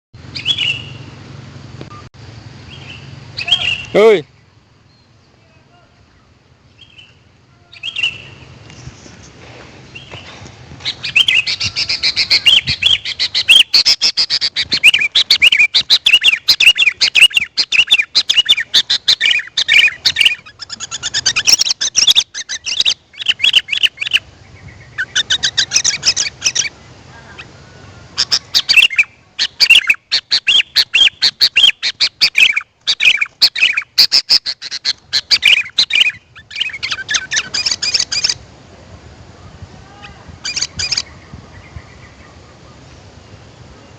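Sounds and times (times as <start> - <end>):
bulbul rapid high chirping: 11.0 - 24.3.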